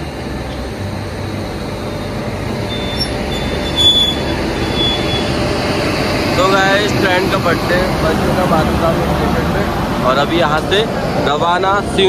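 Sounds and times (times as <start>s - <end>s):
train running rumble: 0.0s - 12.0s
thin high squeal: 2.6s - 5.4s.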